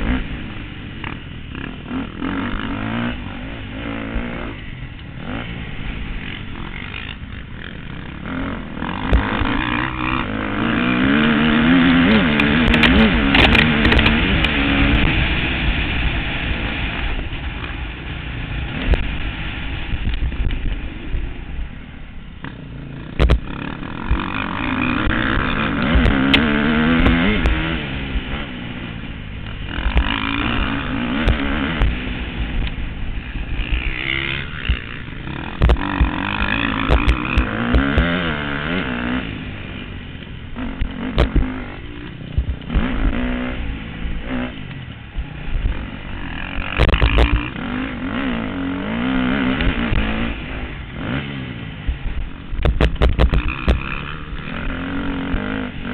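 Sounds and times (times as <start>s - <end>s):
motocross bike engines revving: 0.0s - 55.9s
sharp low thumps: 22.4s - 24.2s, 31.1s - 39.2s, 40.7s - 48.3s, 51.8s - 55.9s.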